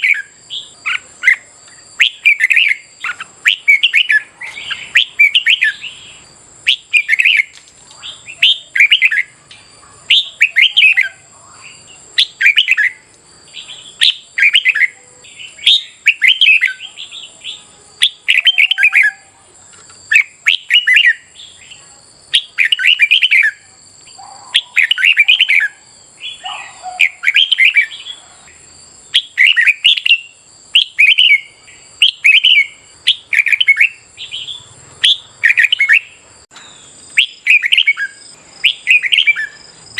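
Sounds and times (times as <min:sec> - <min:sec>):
bird whistling song phrases: 0:00.0 - 0:19.3, 0:20.1 - 0:28.4, 0:29.1 - 0:39.6.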